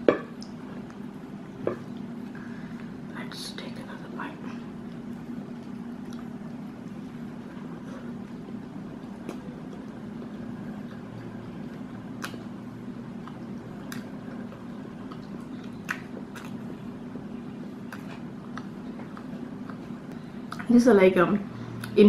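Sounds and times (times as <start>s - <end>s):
person chewing food: 4.6s - 20.7s.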